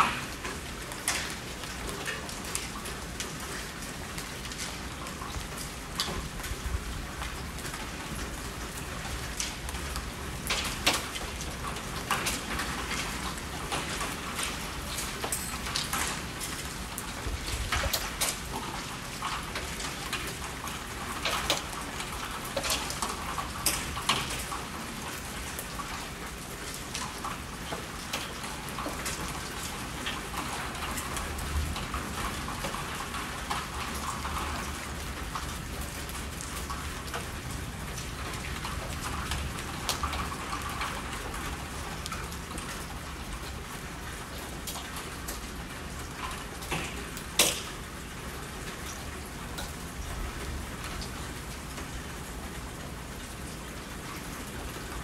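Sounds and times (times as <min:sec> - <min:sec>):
raindrops ticking on surface: 0:00.0 - 0:55.0
steady rainfall: 0:00.0 - 0:55.0.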